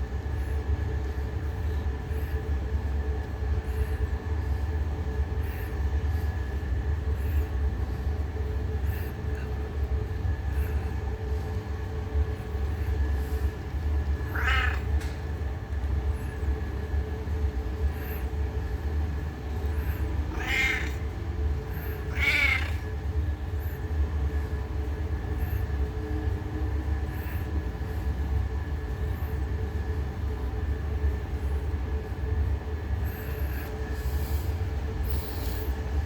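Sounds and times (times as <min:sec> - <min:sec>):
cat meowing: 0:14.2 - 0:15.0, 0:19.7 - 0:23.0.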